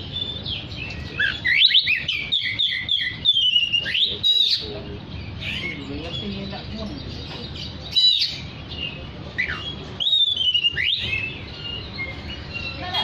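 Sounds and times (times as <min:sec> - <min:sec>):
bird singing whistled notes: 0:00.0 - 0:07.1, 0:07.8 - 0:13.0.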